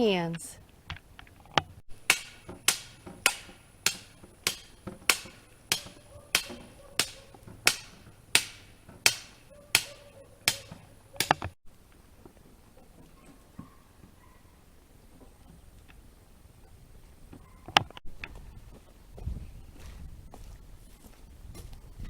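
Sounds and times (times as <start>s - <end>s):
hammer strikes: 1.9s - 11.6s.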